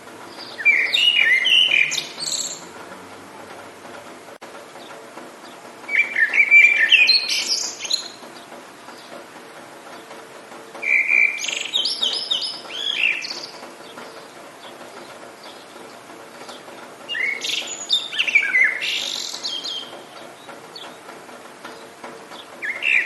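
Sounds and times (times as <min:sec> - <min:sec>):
rain hissing: 0:00.0 - 0:23.0
songbird chirping: 0:00.2 - 0:03.6, 0:04.7 - 0:23.0.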